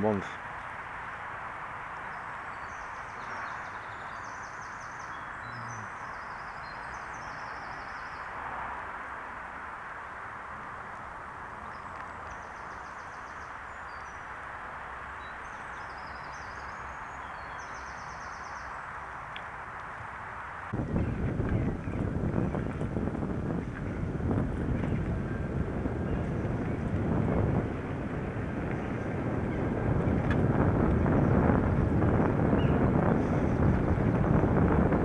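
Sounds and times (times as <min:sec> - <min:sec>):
rushing noise from riding a bike: 0:00.0 - 0:35.0
small birds singing: 0:01.9 - 0:08.4, 0:11.5 - 0:14.3, 0:15.1 - 0:19.4, 0:20.7 - 0:34.1.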